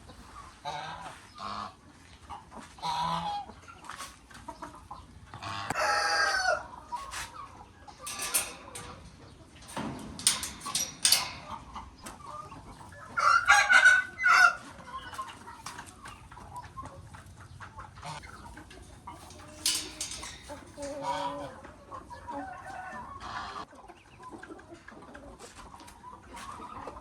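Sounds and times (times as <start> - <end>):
chickens clucking: 0.0 - 27.0
rooster crowing: 5.7 - 6.7, 13.2 - 14.6.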